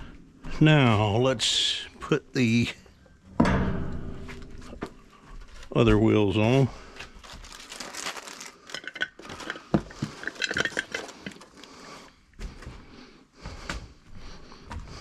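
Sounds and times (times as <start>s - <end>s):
metal wheel hardware clinking: 8.7s - 11.5s.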